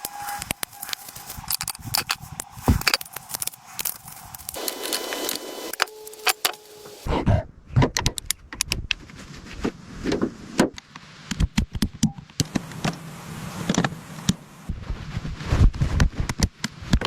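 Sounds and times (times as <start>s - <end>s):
steady hum: 0.0s - 7.2s, 12.4s - 14.8s
sharp clicks and knocks: 7.8s - 9.0s.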